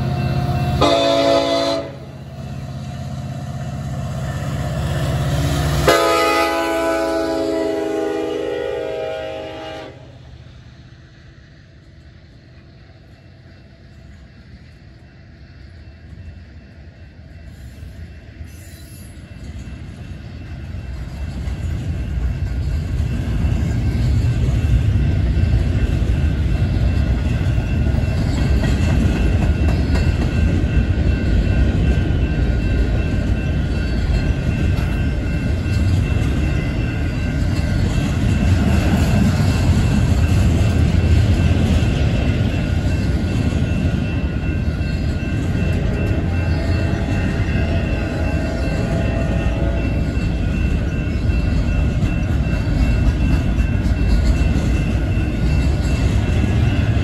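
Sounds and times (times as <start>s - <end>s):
train wheels rumbling on rails: 0.0s - 57.0s
locomotive horn: 0.7s - 2.1s, 5.8s - 10.2s, 46.0s - 50.1s.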